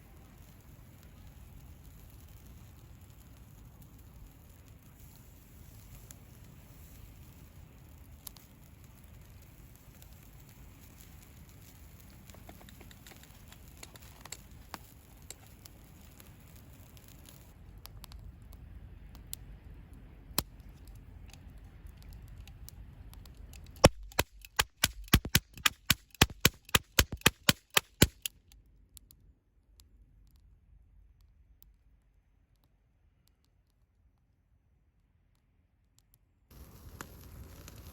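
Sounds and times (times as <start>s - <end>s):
campfire hissing and popping: 0.0s - 29.2s, 36.5s - 37.9s.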